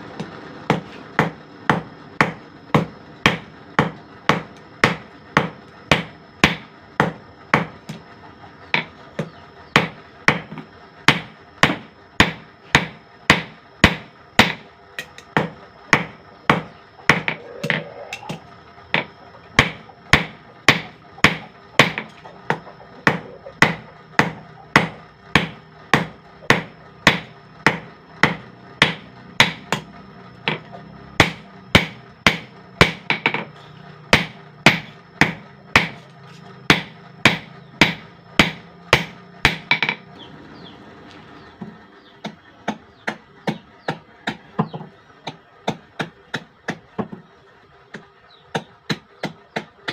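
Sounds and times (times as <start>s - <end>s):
hammer striking steel on anvil: 8.7s - 33.5s, 34.1s - 36.1s, 36.7s - 40.0s.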